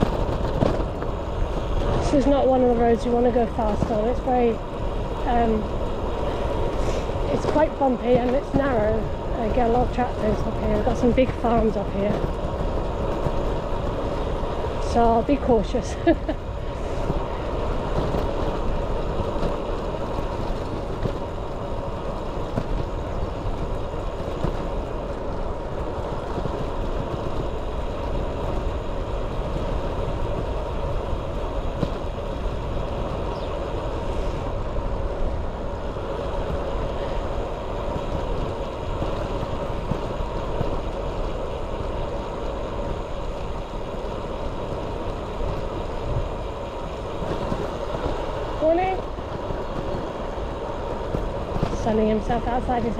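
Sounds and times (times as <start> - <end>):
bicycle tyres rumbling on tarmac: 0.0 - 52.9
wind noise on microphone: 0.0 - 52.9.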